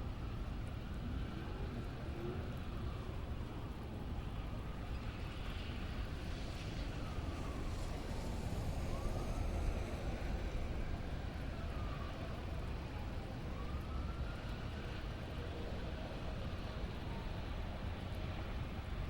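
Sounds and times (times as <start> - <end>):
faint siren wailing: 0.1 - 19.0
steady rain: 0.2 - 19.0.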